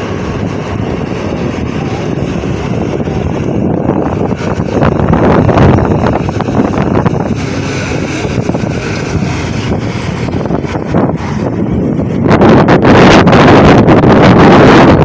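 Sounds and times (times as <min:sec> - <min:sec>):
tractor engine running: 0:00.0 - 0:14.2
wind buffeting microphone: 0:00.0 - 0:15.0.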